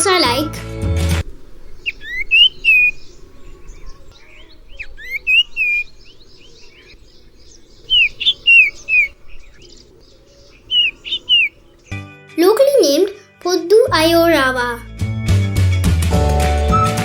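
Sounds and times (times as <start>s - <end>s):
bird whistled calls: 1.2s - 12.0s
faint bird chirps: 1.2s - 12.0s.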